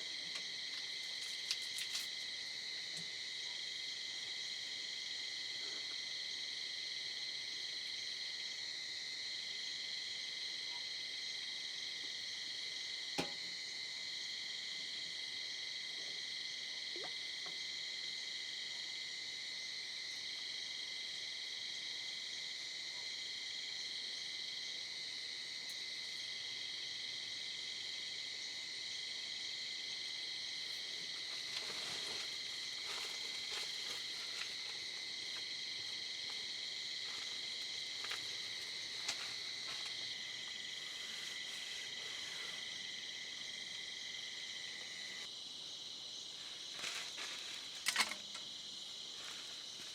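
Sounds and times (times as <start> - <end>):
insects and frogs trilling: 0.0 - 49.9
rustling: 31.2 - 35.4, 46.6 - 48.2.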